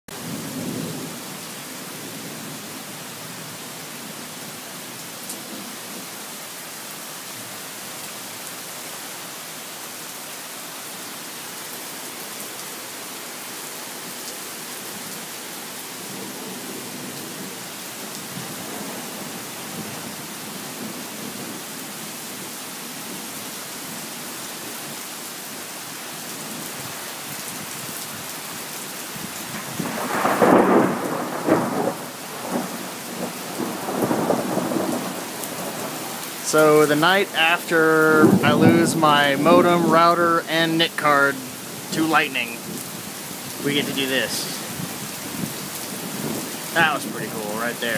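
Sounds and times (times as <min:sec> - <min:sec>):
steady rain falling: 0:00.1 - 0:47.9
faint low thunder rumble: 0:29.6 - 0:36.2, 0:37.0 - 0:40.0.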